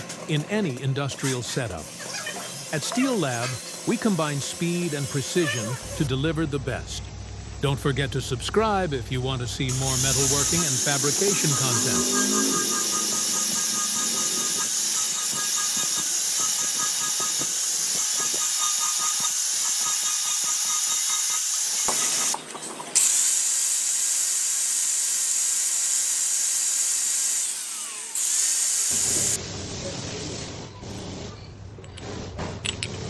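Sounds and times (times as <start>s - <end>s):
high-pitched hiss: 0.0s - 6.1s, 9.7s - 22.4s, 23.0s - 29.4s.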